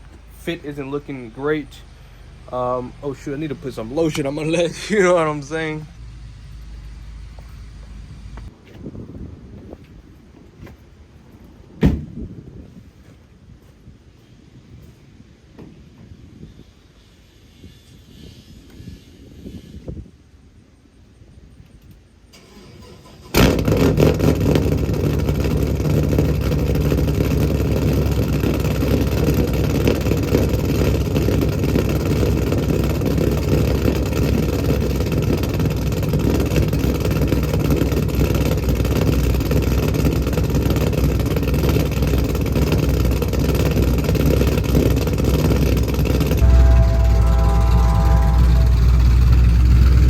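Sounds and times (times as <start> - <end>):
car engine starting and idling: 0.0 - 8.5, 22.3 - 50.0.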